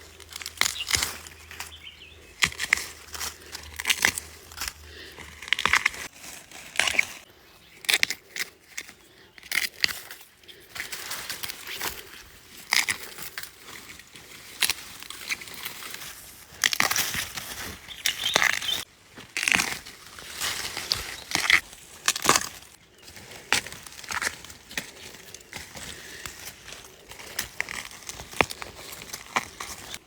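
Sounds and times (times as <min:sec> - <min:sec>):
rustling stalks and leaves: 0:00.0 - 0:30.0
bamboo shoots snapping: 0:00.1 - 0:01.8, 0:02.4 - 0:07.2, 0:07.8 - 0:30.0.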